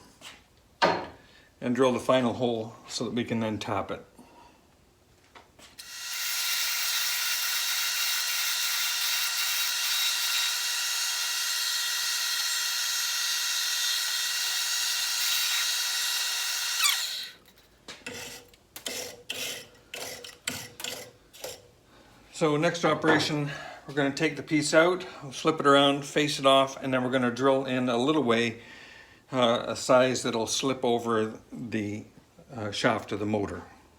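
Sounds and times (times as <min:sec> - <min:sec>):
lathe drilling metal: 0:05.8 - 0:17.4.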